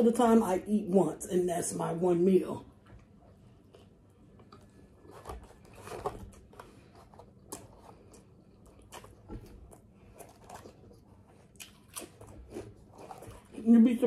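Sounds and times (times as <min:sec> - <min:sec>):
chewing and lip smacking: 0:07.3 - 0:13.6.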